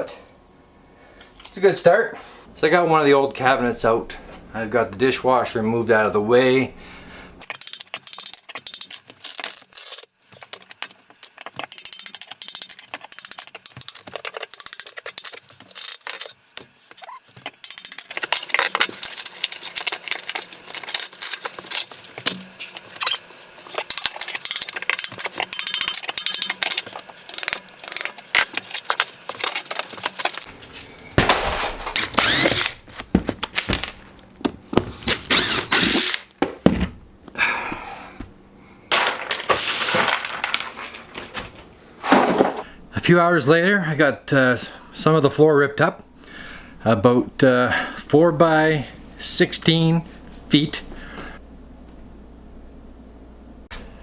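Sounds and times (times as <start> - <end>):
flooring being torn up: 7.6 - 34.2, 38.9 - 42.6
clattering knocks and scraping: 23.6 - 35.3, 38.9 - 42.7.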